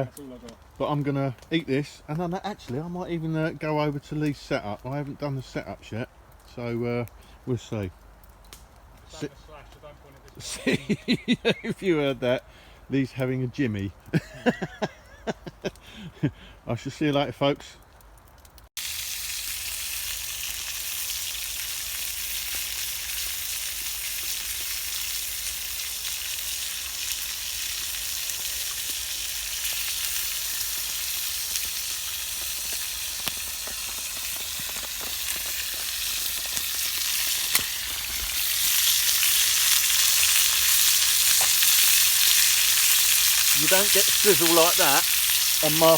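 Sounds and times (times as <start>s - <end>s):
food sizzling in a pan: 10.4s - 11.7s, 14.1s - 15.1s, 18.8s - 45.9s.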